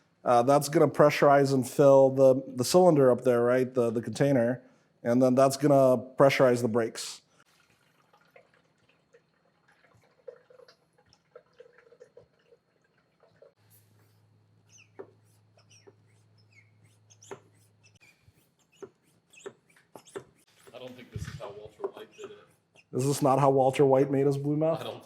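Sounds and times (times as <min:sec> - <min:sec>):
fluid dripping and trickling: 0:07.4 - 0:13.7.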